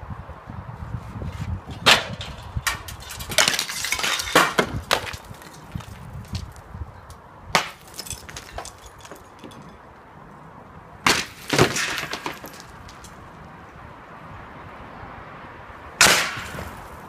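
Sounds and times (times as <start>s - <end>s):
plaster crashing break: 1.8s - 5.6s, 11.1s - 12.7s
small pieces clattering: 2.2s - 6.6s, 7.6s - 9.8s, 11.1s - 13.2s.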